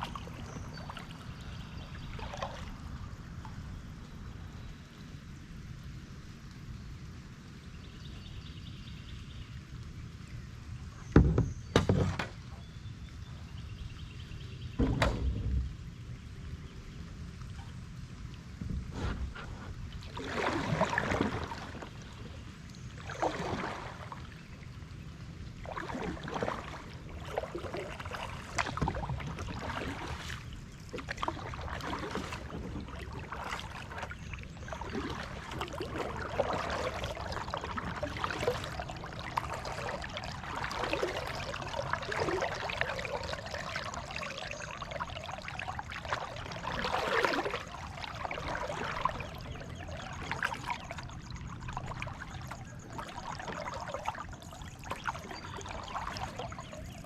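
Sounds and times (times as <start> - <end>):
water splashing off paddle: 0.0 - 2.8, 18.6 - 22.4, 23.0 - 24.4, 25.6 - 57.0.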